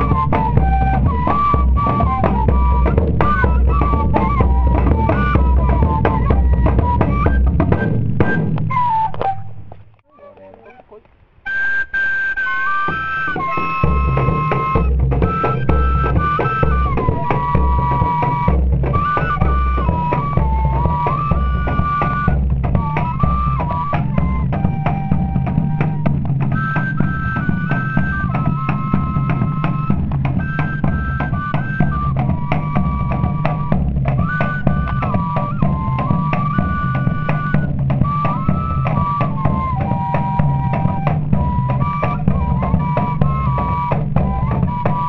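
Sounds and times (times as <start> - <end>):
drum beat: 0.0 - 9.7, 12.8 - 45.0.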